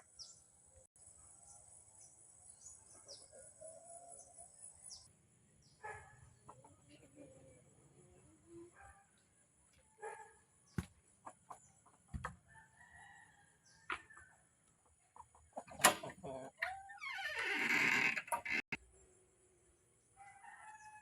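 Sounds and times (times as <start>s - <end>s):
chickens clucking: 6.4s - 7.6s, 14.8s - 16.9s
rooster crowing: 20.2s - 21.0s.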